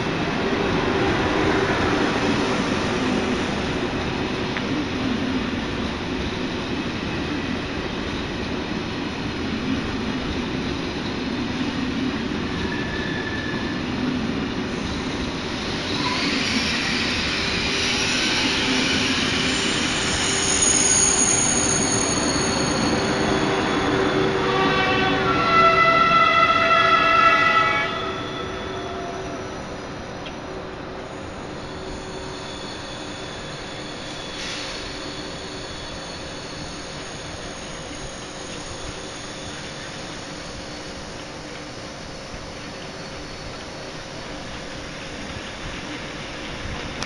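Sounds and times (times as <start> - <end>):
train wheels rumbling on rails: 0.0 - 47.0
high-pitched wheel squeal: 15.7 - 29.6.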